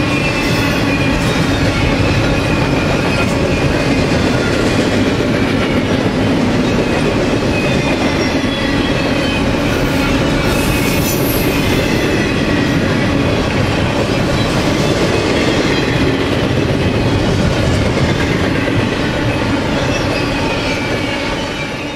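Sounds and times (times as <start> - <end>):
freight train wheels clattering: 0.0 - 21.9
high wheel squealing: 7.4 - 13.0.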